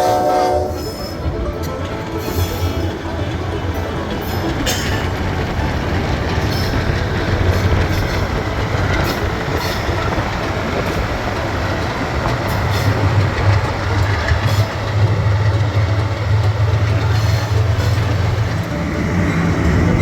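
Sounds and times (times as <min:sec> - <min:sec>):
locomotive engine drone: 0:00.0 - 0:20.0
rail noise: 0:00.0 - 0:20.0.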